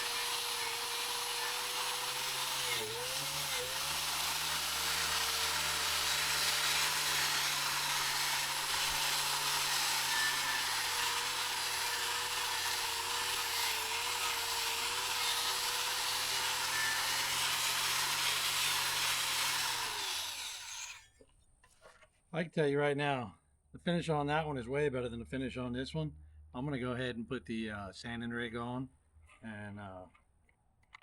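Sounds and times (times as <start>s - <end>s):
wire wheel grinder scouring metal: 0.0s - 21.0s.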